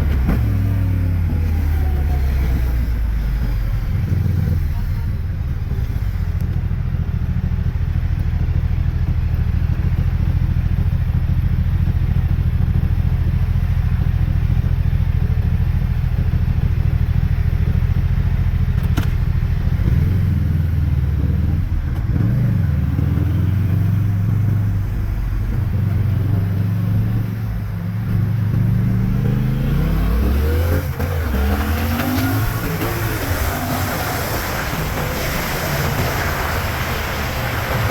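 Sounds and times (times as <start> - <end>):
motorcycle engine revving: 9.6 - 37.9.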